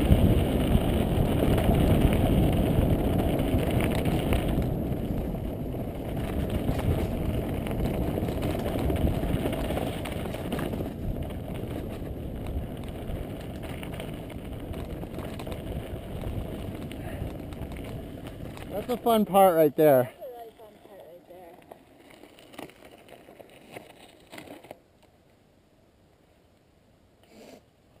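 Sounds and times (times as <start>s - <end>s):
wind buffeting microphone: 0.0s - 20.8s
bike rolling on dirt trail: 0.0s - 25.4s.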